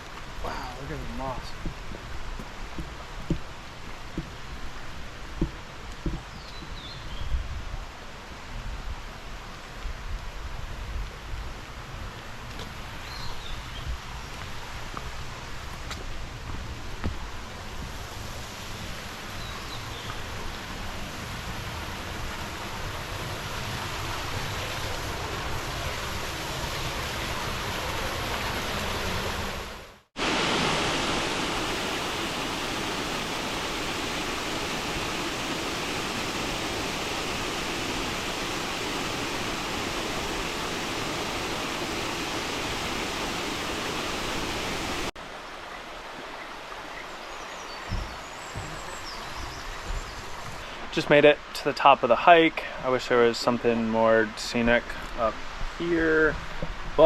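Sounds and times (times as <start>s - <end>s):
waterfall and stream rushing: 0.0s - 57.0s.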